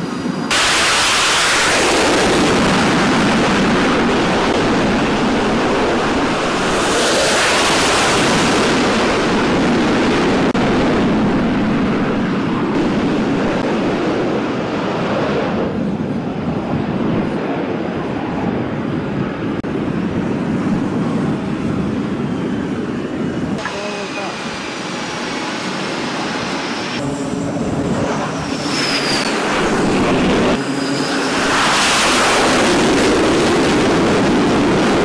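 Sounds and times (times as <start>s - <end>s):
jet engines roaring: 0.0s - 35.0s.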